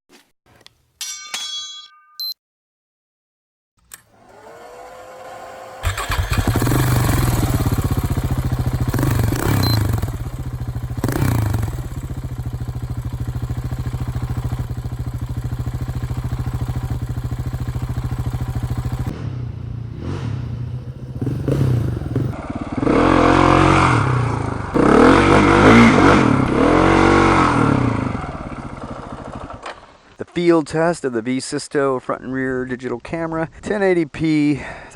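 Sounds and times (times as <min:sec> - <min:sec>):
starter whine: 0:03.8 - 0:22.8
motorcycle engine idling and revving: 0:04.3 - 0:29.9.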